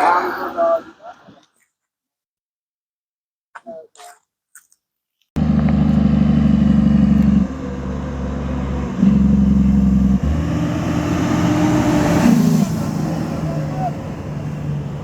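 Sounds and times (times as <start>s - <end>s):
vehicle engine running: 5.4s - 15.0s.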